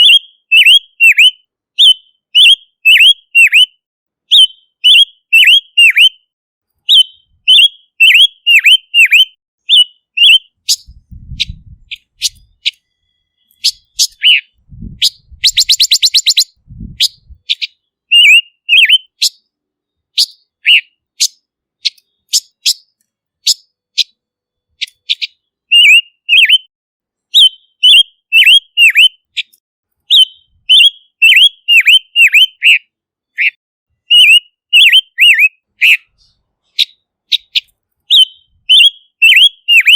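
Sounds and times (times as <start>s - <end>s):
bird whistling short notes: 6.9s - 19.4s, 20.2s - 24.1s, 24.8s - 26.7s, 33.4s - 39.9s
faint low thumps: 10.9s - 12.5s, 14.6s - 15.6s, 16.6s - 17.4s
bird rattling call: 13.6s - 16.5s.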